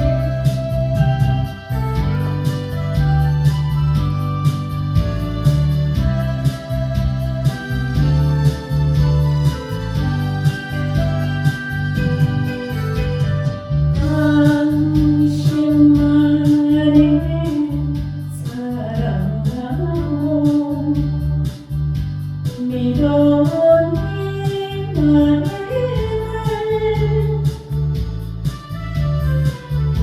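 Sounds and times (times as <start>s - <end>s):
backing track with steady beat: 0.0s - 30.0s
person singing: 5.9s - 13.1s, 14.0s - 21.6s, 22.5s - 27.8s.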